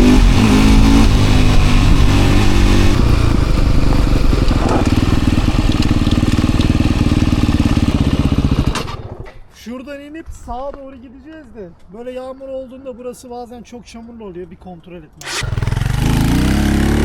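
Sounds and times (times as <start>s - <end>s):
dirt bike engine revving: 0.0s - 9.2s, 15.2s - 17.0s.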